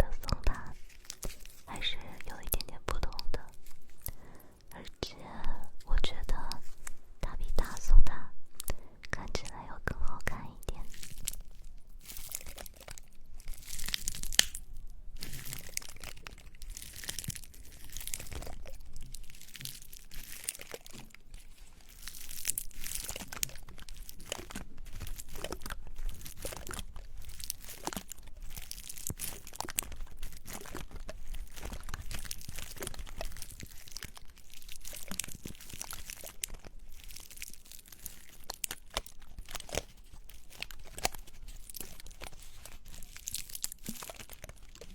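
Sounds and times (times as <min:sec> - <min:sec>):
pine cones crackling when rubbed: 0:00.0 - 0:04.5, 0:10.4 - 0:44.9.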